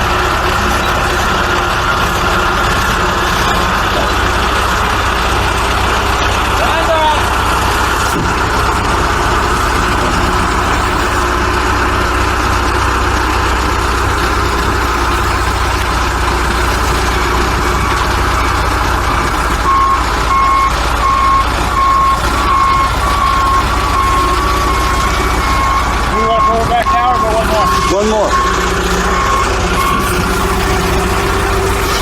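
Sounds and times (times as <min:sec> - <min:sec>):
diesel engine running: 0:00.0 - 0:32.0
backup alarm beeping: 0:13.7 - 0:32.0.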